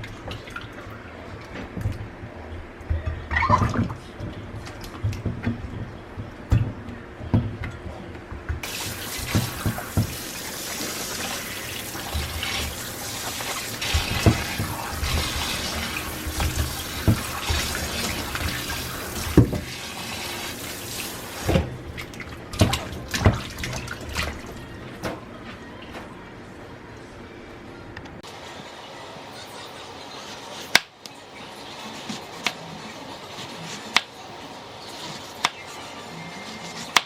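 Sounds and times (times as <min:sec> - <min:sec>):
tap water running into sink: 0:08.6 - 0:25.2.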